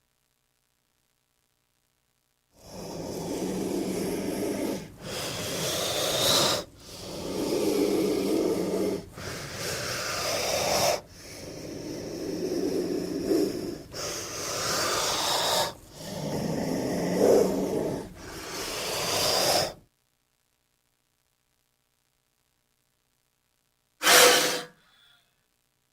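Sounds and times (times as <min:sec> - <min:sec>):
snake hissing: 0:02.6 - 0:19.8, 0:24.0 - 0:24.8.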